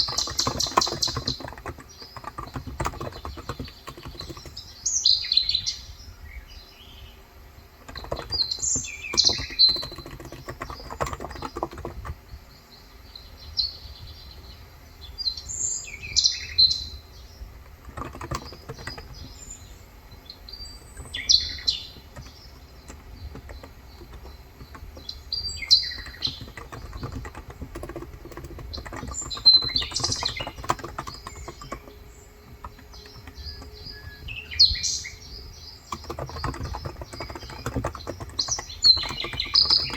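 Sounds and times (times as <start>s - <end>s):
typing on keyboard: 0.0s - 4.9s, 7.8s - 12.2s, 17.4s - 39.9s
birds chirping: 0.0s - 39.9s.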